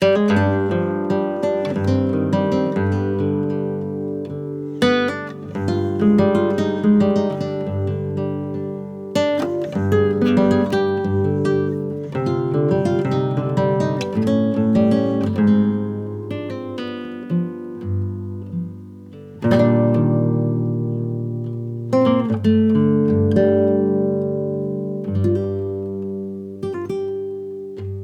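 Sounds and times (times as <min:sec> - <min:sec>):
acoustic guitar music: 0:00.0 - 0:28.0.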